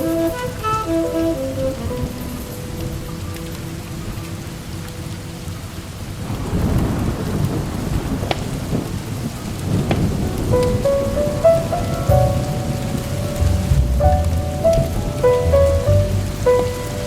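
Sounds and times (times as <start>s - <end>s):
steady rain: 0.0s - 17.0s
thunder rolling: 6.0s - 17.0s
sharp thunder cracks: 6.2s - 16.4s.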